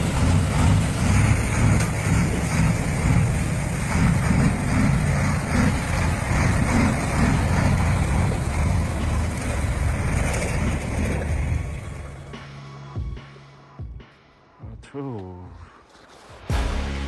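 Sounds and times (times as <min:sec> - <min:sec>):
heavy truck rumbling: 0:00.0 - 0:13.2.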